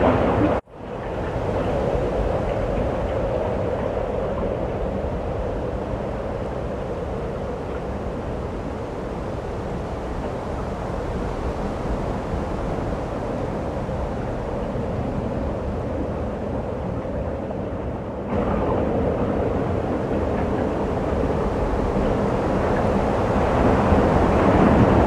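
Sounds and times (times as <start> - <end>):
blizzard wind rushing: 18.3 - 25.0.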